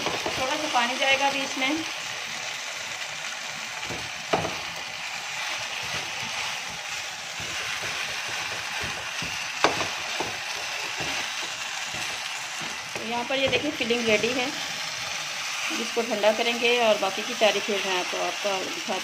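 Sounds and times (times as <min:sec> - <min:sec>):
food sizzling in frying pan: 0:00.0 - 0:19.0
spatula stirring and scraping: 0:03.8 - 0:15.8.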